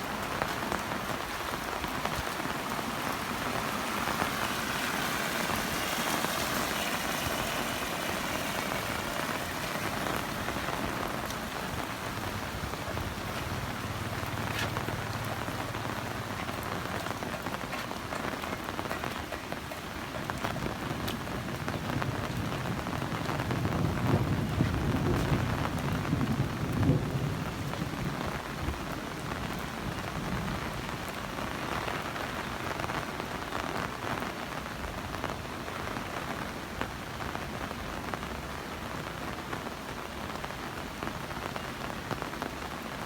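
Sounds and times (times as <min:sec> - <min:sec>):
heavy rain falling: 0:00.0 - 0:43.0
low thunder rumble: 0:20.6 - 0:28.8.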